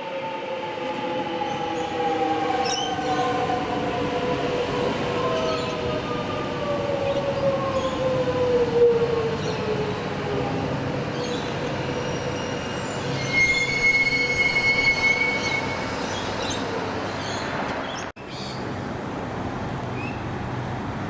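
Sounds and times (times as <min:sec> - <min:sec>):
steel wheel squeal: 0:11.9 - 0:16.6.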